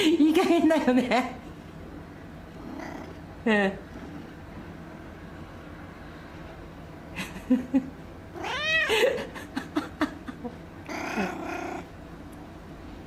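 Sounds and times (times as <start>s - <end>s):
cat crying: 8.3s - 9.2s, 10.9s - 11.9s
cat chirping: 8.4s - 8.9s, 10.9s - 11.9s
cat meowing: 8.4s - 8.9s, 10.9s - 11.9s.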